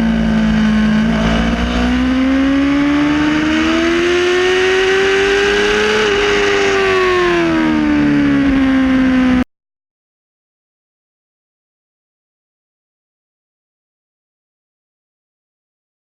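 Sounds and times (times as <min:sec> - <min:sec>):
wind and road noise: 0:00.0 - 0:09.4
motorcycle engine revving: 0:00.0 - 0:09.5.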